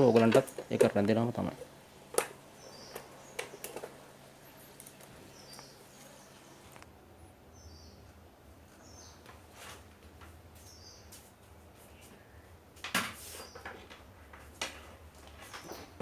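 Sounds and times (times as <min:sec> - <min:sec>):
faint bird chirps: 0:04.4 - 0:06.6, 0:07.5 - 0:08.1.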